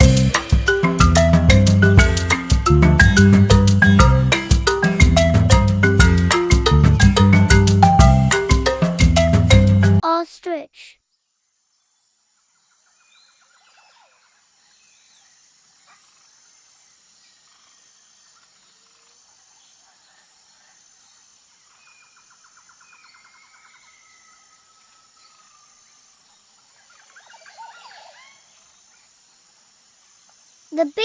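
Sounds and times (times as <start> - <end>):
bird trill: 0.0 - 10.0
birds chirping: 0.0 - 10.0.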